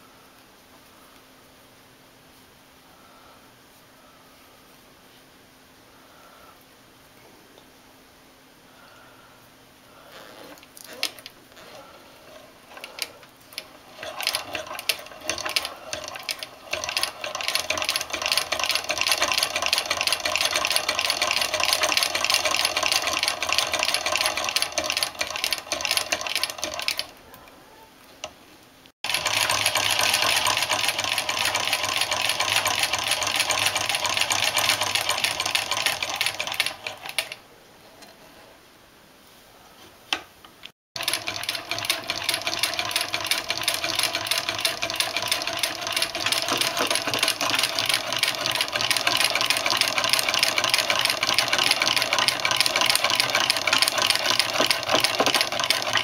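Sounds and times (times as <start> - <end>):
sewing machine clatter: 10.4 - 27.1, 29.0 - 37.4, 41.0 - 56.0.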